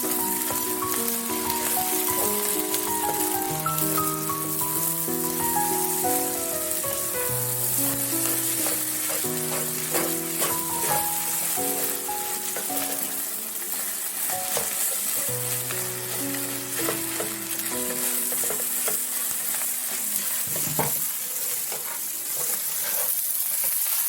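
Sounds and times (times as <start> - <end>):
food sizzling in a pan: 0.0 - 24.0
utensil scraping a pan: 7.6 - 13.0.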